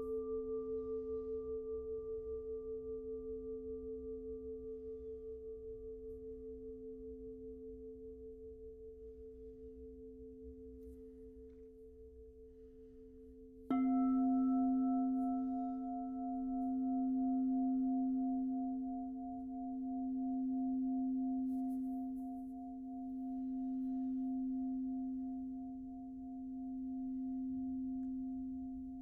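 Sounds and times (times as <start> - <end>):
singing bowl ringing: 13.3 - 29.0.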